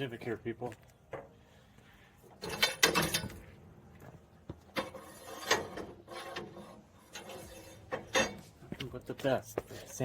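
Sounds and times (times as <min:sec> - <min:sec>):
metal tools clicking and rattling: 0:02.4 - 0:03.4, 0:04.8 - 0:08.5.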